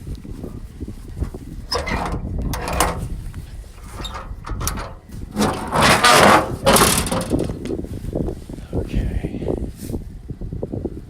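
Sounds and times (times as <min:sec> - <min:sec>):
truck bed gates clattering: 0:01.7 - 0:03.2, 0:03.8 - 0:07.8.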